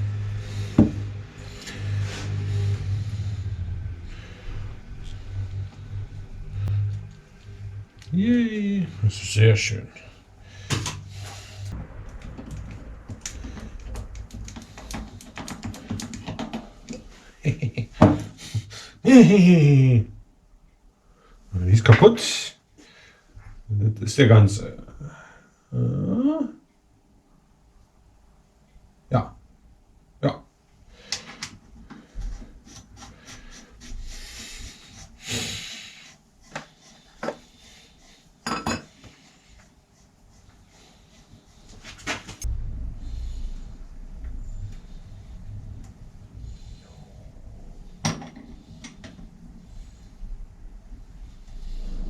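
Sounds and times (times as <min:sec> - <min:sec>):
rubbing or rustling noise: 0:10.6 - 0:17.5, 0:31.2 - 0:52.0
sharp clicks and knocks: 0:11.8 - 0:17.1
short vocal sounds: 0:24.9 - 0:26.6.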